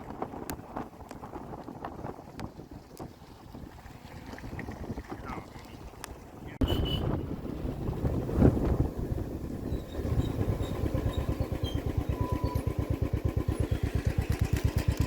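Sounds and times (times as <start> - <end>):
engine idling with low chug: 9.0 - 15.0.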